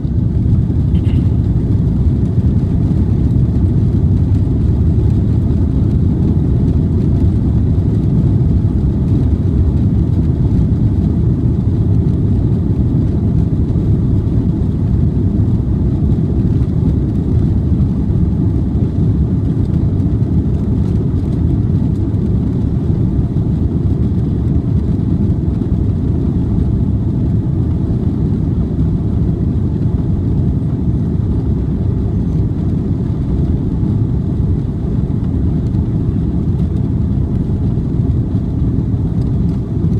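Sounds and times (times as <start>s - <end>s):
jet engines in aircraft cabin: 0.0s - 39.9s.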